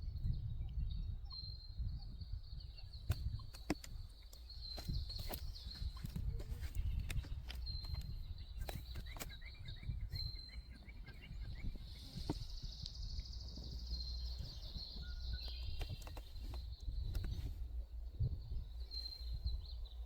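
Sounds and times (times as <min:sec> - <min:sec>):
bird chirps: 0:00.0 - 0:20.0
wind rumble on microphone: 0:00.0 - 0:20.0.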